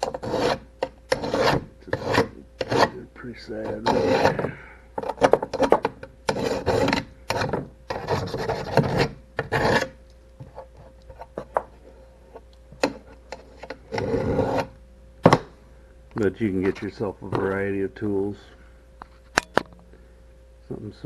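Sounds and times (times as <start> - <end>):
hand file rasping metal: 0.0 - 3.0, 3.7 - 4.5, 6.3 - 10.0, 13.4 - 14.7.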